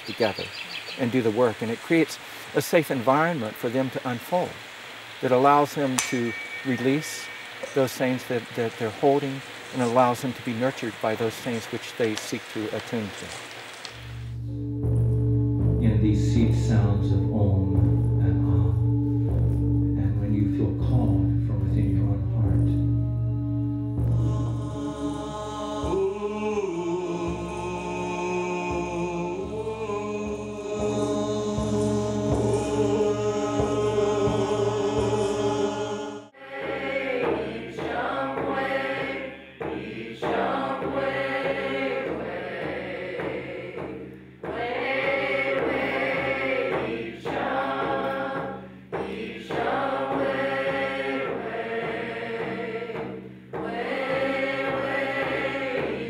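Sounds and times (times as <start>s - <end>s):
group chanting: 24.2s - 56.0s.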